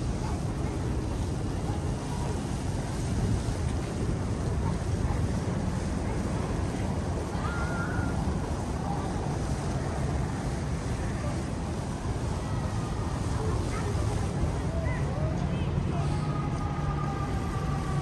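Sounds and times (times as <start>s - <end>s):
muffled snowbound street ambience: 0.0s - 18.0s.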